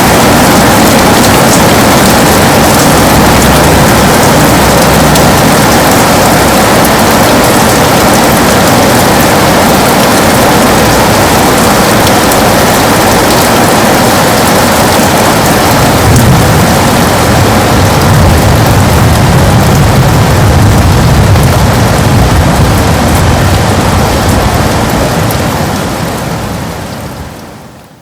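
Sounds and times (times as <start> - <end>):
heavy rain on a window: 0.0 - 28.0
low rumble: 0.1 - 11.8, 15.4 - 25.8.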